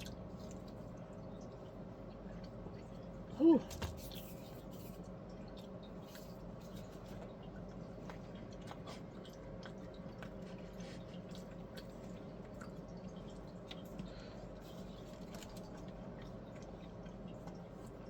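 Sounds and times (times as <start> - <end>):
steady low hum: 0.0 - 18.0
person chewing: 4.1 - 18.0.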